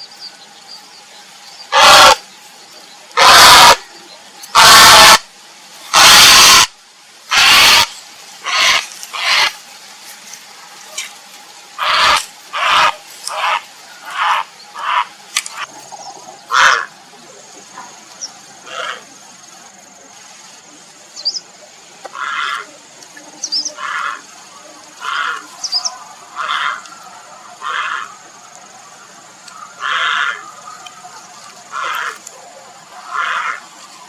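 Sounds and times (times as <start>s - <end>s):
heron croaking calls: 1.7s - 2.2s, 3.2s - 3.8s, 4.6s - 5.2s, 5.9s - 6.7s, 7.3s - 9.5s, 11.8s - 15.7s, 16.5s - 16.9s, 27.6s - 28.1s, 29.8s - 30.5s, 33.1s - 33.6s.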